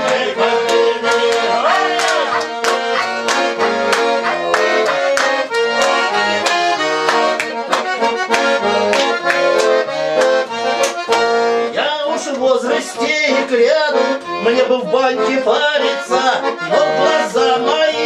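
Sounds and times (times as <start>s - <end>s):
person singing: 0.0s - 5.2s, 11.7s - 18.0s
accordion playing: 0.0s - 18.0s.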